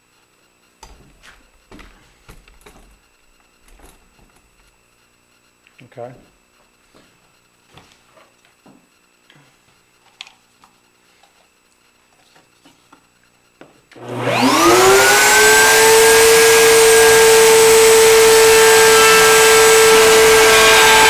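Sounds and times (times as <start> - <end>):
electric router motor whine: 13.9 - 21.0.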